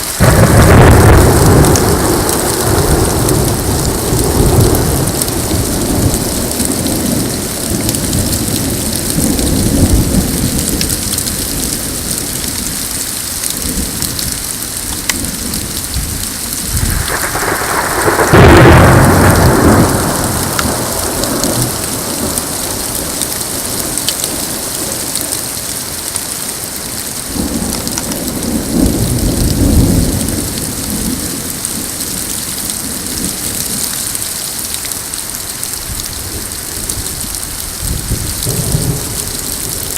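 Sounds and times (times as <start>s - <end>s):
thunder rumbling: 0.0s - 25.6s, 27.2s - 34.2s, 35.2s - 39.9s
rain and hail falling: 0.0s - 39.9s
loud close thunderclap: 0.2s - 7.8s, 16.0s - 22.9s, 27.4s - 31.3s, 37.8s - 39.9s.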